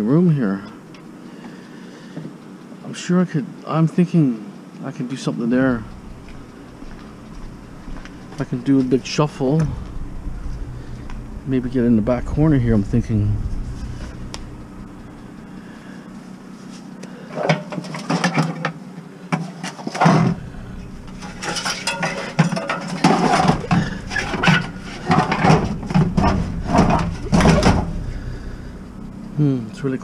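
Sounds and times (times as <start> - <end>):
low rumble of items sliding: 5.4 - 17.0, 20.0 - 30.0
scrap metal and bottles clanking: 16.6 - 18.8, 19.4 - 28.0.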